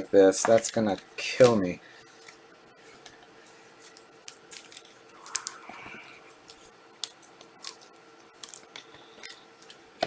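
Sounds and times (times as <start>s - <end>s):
cards being flipped through: 3.8s - 5.8s.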